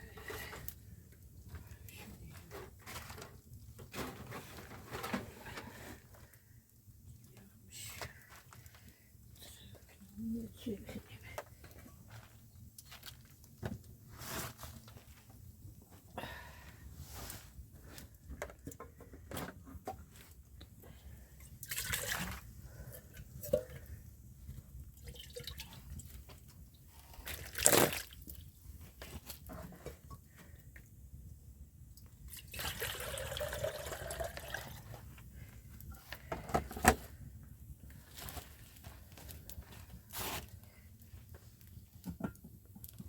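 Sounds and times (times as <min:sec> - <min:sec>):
water pouring and dripping: 0:21.6 - 0:22.5, 0:24.9 - 0:28.5.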